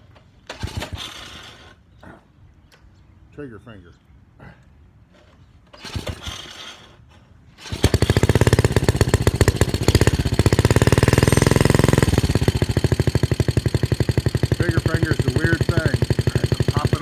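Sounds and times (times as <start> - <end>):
engine pull-start: 0.0 - 1.8, 5.7 - 17.0
small engine running fast: 5.8 - 6.9, 7.6 - 17.0.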